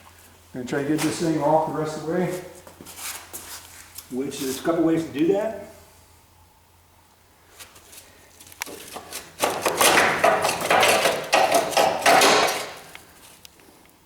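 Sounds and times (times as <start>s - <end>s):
hammer striking metal: 9.4s - 12.8s.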